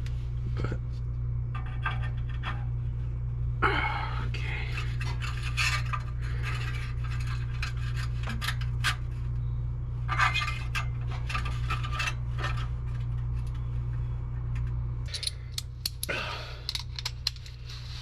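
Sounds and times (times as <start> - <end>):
steady low hum: 0.0 - 18.0
metal tools clinking and scraping: 10.1 - 13.6, 15.1 - 15.6.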